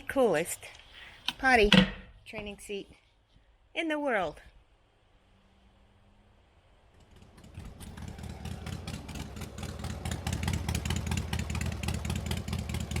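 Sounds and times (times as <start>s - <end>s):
motorcycle engine running: 7.0s - 13.0s.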